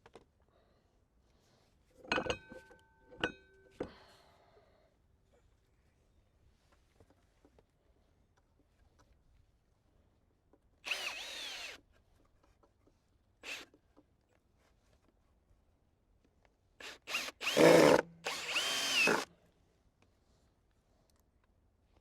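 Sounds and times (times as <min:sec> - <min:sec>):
power drill driving screws into wood: 0:10.8 - 0:11.8, 0:13.4 - 0:13.7, 0:16.8 - 0:19.3.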